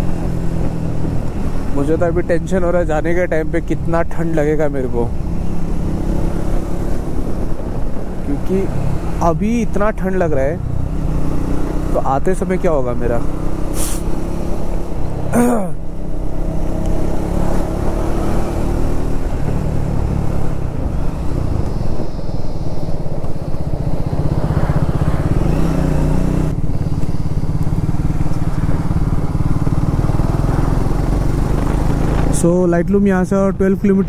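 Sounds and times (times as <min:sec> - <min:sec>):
motorcycle engine running: 0:00.0 - 0:34.0
wind noise on microphone: 0:05.1 - 0:09.2, 0:19.0 - 0:29.3.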